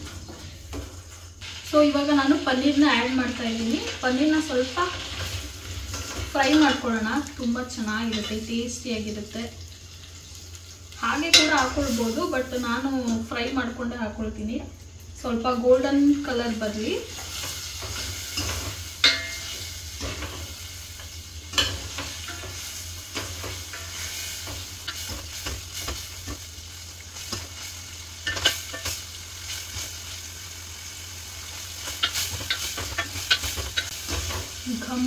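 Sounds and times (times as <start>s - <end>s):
cheese cubes sizzling in oil: 0.0s - 35.0s
ladle clinking against pot: 18.4s - 19.6s.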